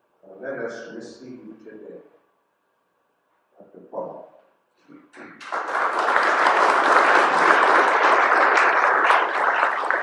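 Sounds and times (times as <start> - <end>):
audience applause: 5.4 - 10.0.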